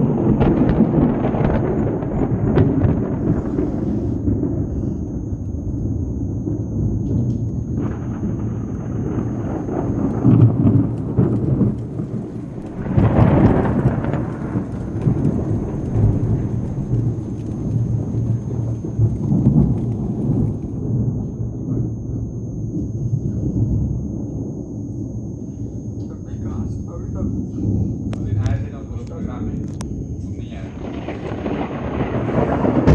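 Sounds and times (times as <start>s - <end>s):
rain hissing: 0.0s - 32.9s
thunder rumbling: 0.0s - 32.9s.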